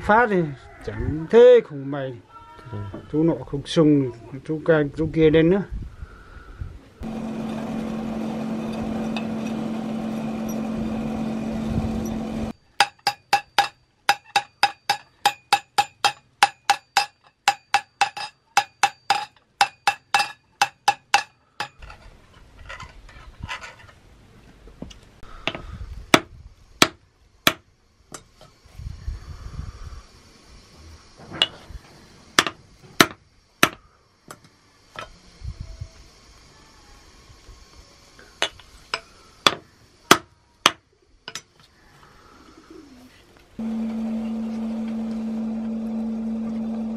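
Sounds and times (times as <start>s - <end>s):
motor hum: 7.0s - 12.6s, 43.6s - 46.9s
hammer striking hot steel on anvil: 12.8s - 21.8s.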